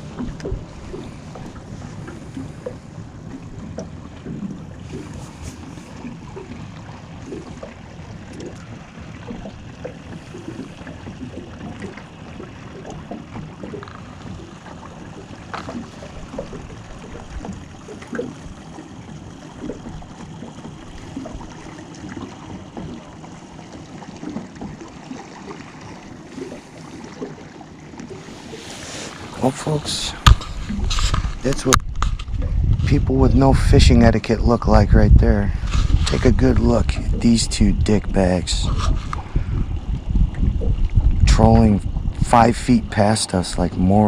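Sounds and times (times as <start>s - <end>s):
water lapping against boat hull: 0.0s - 44.0s
wind rumble on microphone: 28.2s - 44.0s.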